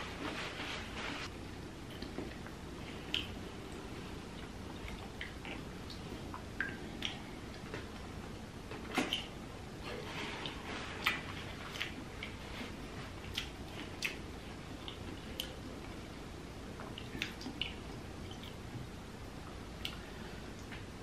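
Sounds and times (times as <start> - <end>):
person chewing with mouth smacks: 1.9 - 3.4, 4.4 - 7.7, 10.4 - 15.8, 16.8 - 18.6, 19.8 - 20.7.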